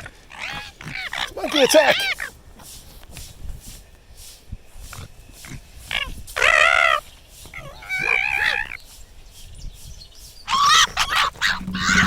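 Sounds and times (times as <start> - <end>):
animal shrieking: 10.5 - 12.0.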